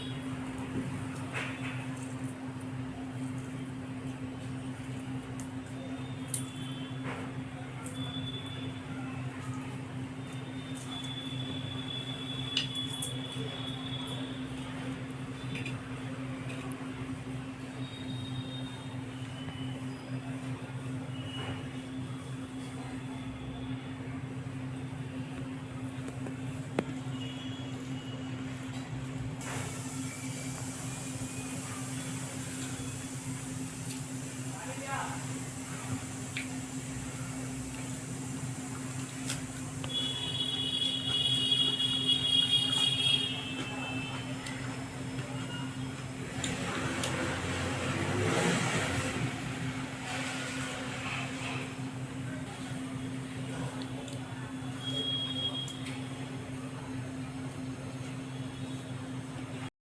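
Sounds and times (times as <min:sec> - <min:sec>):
vehicle passing by: 0:46.3 - 0:51.4.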